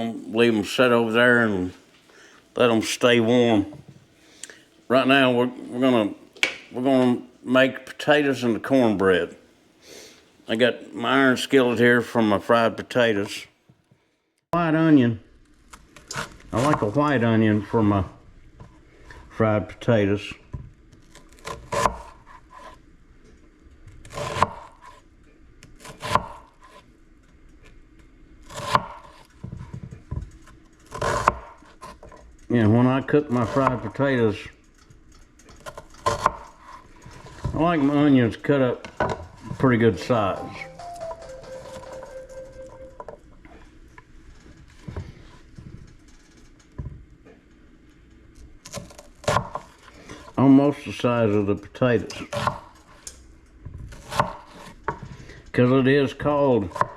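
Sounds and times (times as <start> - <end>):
knife slicing onion: 21.0 - 22.8, 24.0 - 25.0, 25.7 - 26.9, 28.4 - 29.8, 35.6 - 37.4, 53.9 - 55.0.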